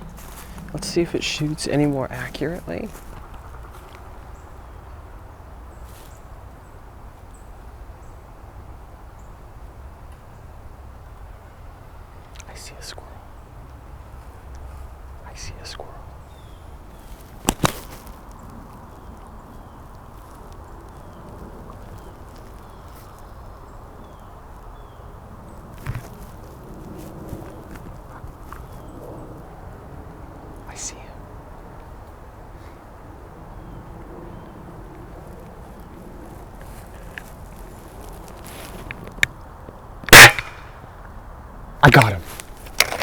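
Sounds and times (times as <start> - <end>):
low rustling noise: 0.0 - 6.6, 12.5 - 39.8
wind rumble on microphone: 0.0 - 12.2, 13.0 - 41.8
brief rustle: 17.0 - 18.4
sharp knock: 40.1 - 40.7.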